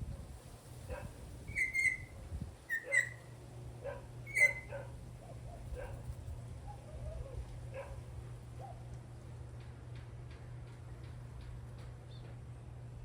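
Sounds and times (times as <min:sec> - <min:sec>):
bird whistling notes: 0:01.5 - 0:02.1, 0:04.3 - 0:04.7
distant dog barking: 0:03.8 - 0:06.0, 0:06.7 - 0:08.0.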